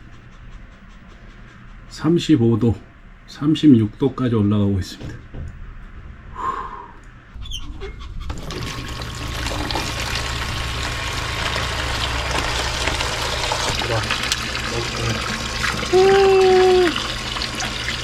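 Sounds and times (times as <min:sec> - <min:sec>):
low steady hum: 0:00.0 - 0:18.0
water running and splashing: 0:08.3 - 0:18.0.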